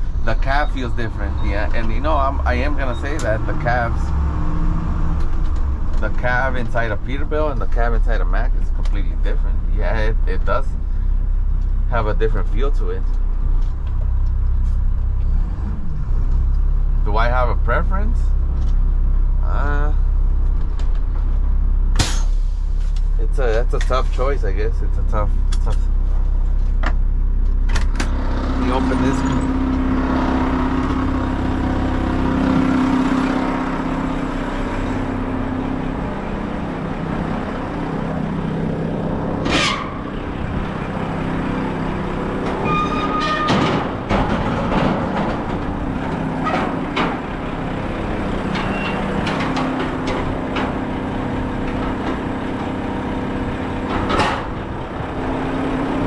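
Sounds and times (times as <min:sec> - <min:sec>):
garbage truck engine hum: 0:00.0 - 0:56.0
metallic clanks and bangs: 0:21.9 - 0:22.8, 0:27.8 - 0:55.4.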